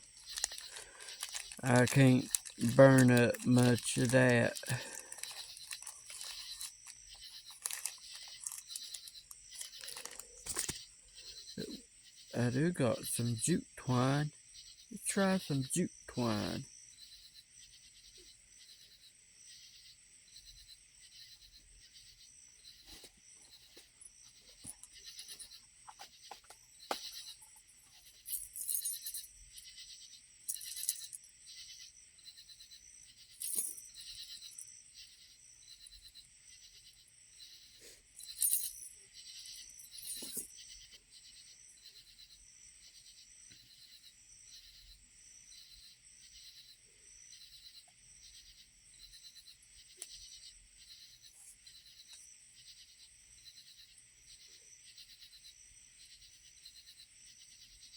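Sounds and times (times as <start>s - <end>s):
scrapes and clicks of handled gear: 0.0s - 10.9s, 30.5s - 31.2s, 33.4s - 33.8s, 40.0s - 40.5s
crickets chirping: 0.0s - 57.9s.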